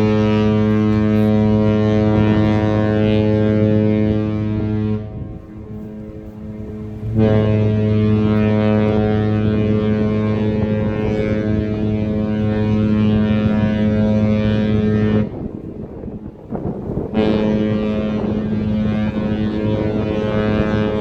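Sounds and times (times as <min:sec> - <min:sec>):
ship horn long low blasts: 0:00.0 - 0:21.0.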